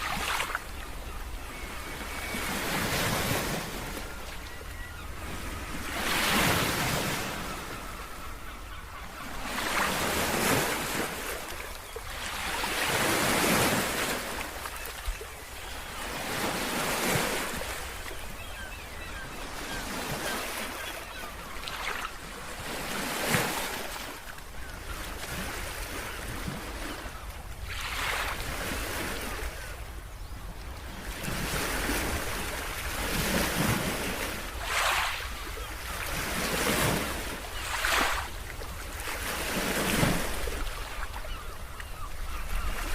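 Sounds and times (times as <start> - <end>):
waves breaking: 25.0 - 29.6, 31.0 - 42.9.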